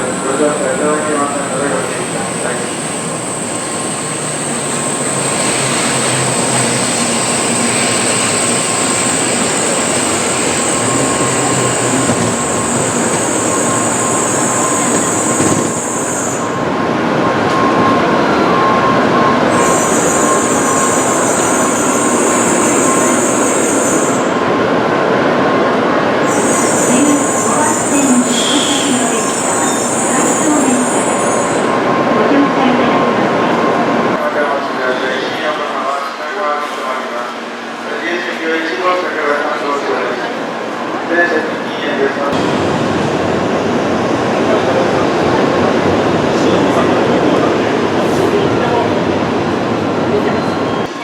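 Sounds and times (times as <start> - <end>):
train wheels rumbling: 0.0 - 18.2.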